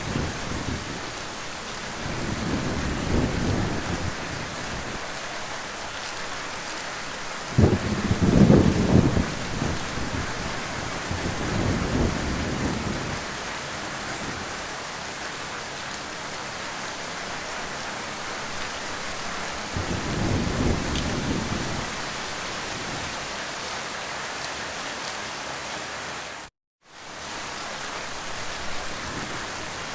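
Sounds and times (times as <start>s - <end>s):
thunder rumbling: 0.0s - 5.0s, 7.5s - 13.4s, 19.6s - 23.2s
heavy rain: 0.0s - 29.9s.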